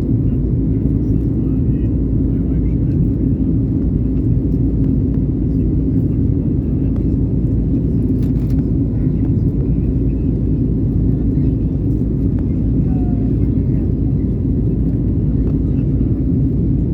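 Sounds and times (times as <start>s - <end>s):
jet engine rumble in cabin: 0.0s - 16.9s.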